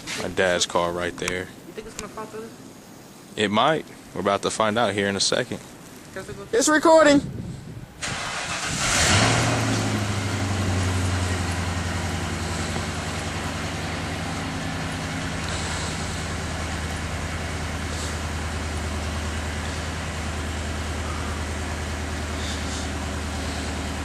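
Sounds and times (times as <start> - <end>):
car engine idling: 8.1 - 24.0.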